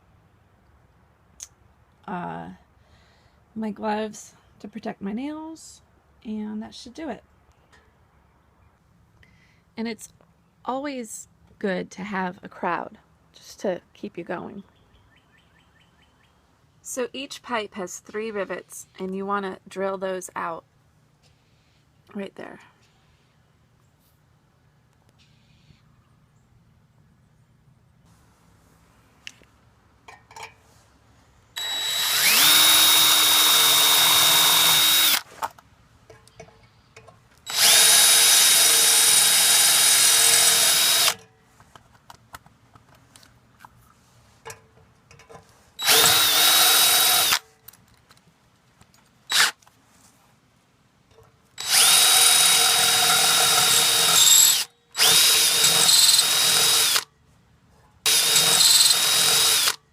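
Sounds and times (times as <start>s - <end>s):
power drill whining: 31.6s - 35.3s, 37.5s - 41.2s, 45.8s - 47.4s, 49.3s - 49.6s, 51.6s - 57.0s, 58.1s - 59.8s.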